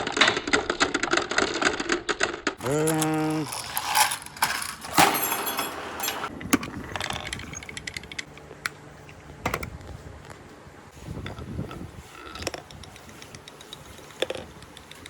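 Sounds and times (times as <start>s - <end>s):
marbles clacking: 2.6s - 8.3s
marbles rolling on track: 2.6s - 8.3s.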